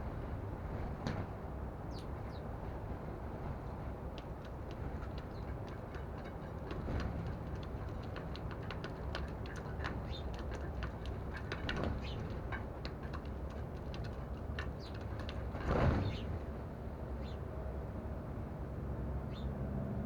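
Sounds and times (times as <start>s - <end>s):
birds pecking at seed: 3.6s - 16.4s
sparrows chirping: 4.2s - 16.4s, 17.2s - 17.4s, 19.3s - 19.5s.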